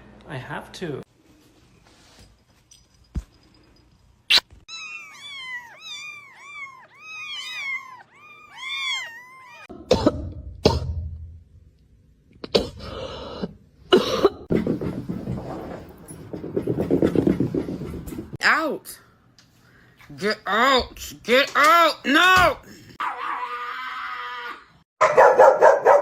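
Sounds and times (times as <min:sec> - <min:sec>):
cat mewing: 0:04.7 - 0:09.7.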